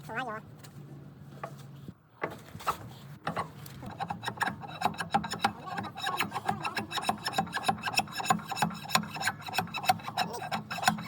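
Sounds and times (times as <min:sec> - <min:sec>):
rapid irregular clicks and knocks: 0:03.2 - 0:11.0.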